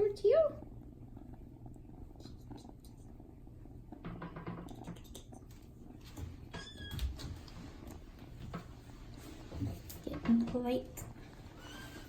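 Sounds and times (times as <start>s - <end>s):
kitten purring: 0.0s - 12.0s.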